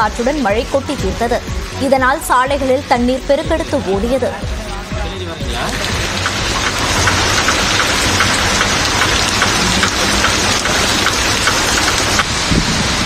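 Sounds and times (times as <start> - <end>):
car engines humming: 0.0 - 12.4
heavy rain on a street: 0.0 - 13.0.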